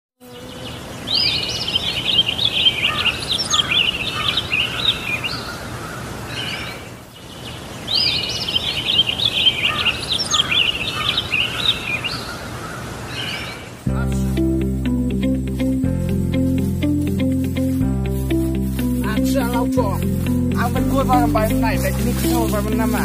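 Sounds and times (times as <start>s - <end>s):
background hiss: 0.2s - 23.0s
songbird warbling: 0.3s - 13.8s.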